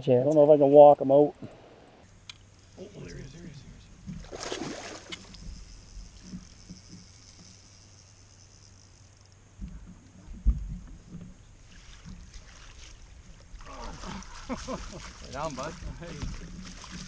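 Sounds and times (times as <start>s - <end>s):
soft bumps and knocks in boat: 9.6s - 17.0s.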